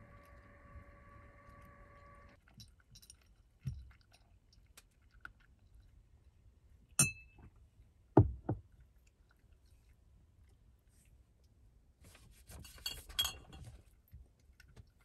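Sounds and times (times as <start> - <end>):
cat crunching dry food: 0.0 - 6.4.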